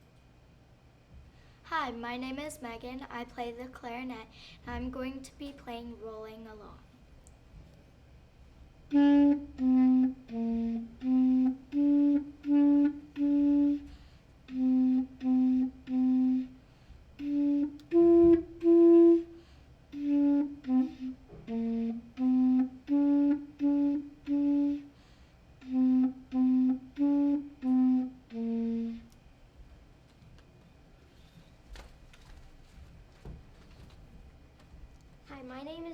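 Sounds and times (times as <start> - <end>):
clarinet playing tune: 8.9 - 16.6, 17.2 - 24.9, 25.6 - 29.2.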